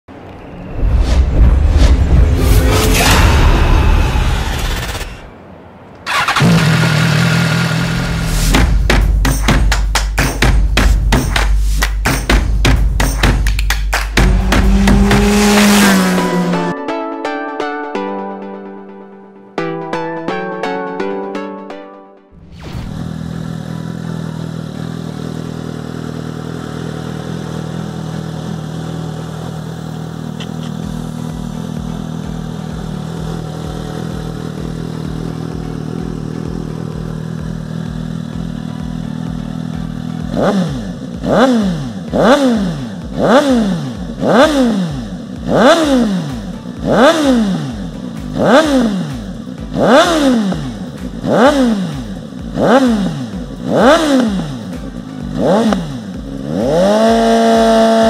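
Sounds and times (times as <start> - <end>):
motorcycle engine idling and revving: 6.0 - 16.7, 22.4 - 58.0.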